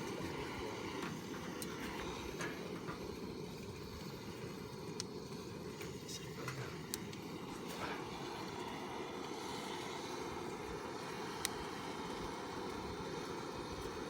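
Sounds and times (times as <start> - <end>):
wood crackling: 0.0 - 8.2
low rush of fire flames: 0.0 - 14.0.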